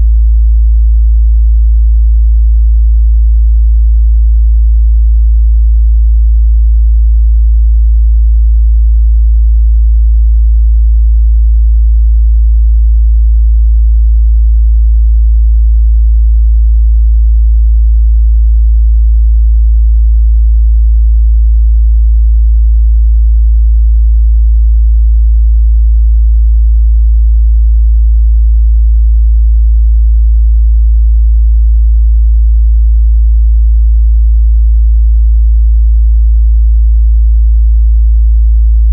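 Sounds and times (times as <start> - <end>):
low sine-wave test tone: 0.0 - 38.9.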